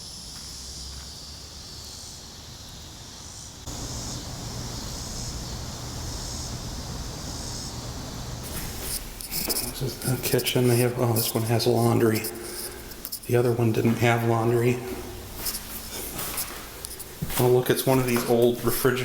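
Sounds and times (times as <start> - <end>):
cicadas buzzing: 0.0 - 19.0
rustling: 8.4 - 18.8.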